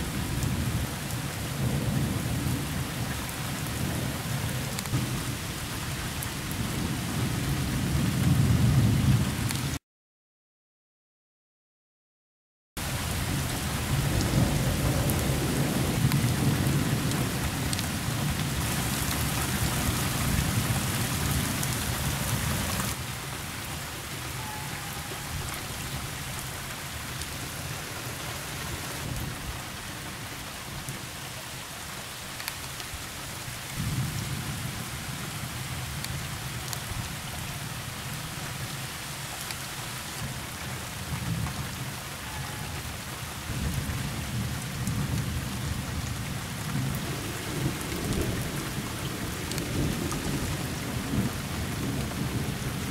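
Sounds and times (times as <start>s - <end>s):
heavy rain falling: 0.0s - 9.8s, 12.8s - 52.9s
thunder rumbling: 13.1s - 23.0s, 43.5s - 52.9s.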